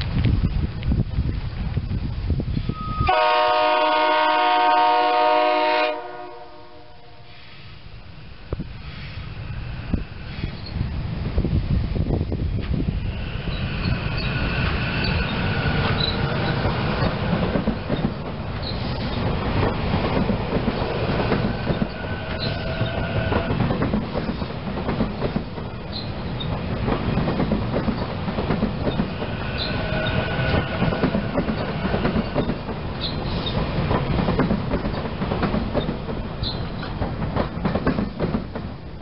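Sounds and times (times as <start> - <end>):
train wheels clacking over rail joints: 13.4 - 39.0.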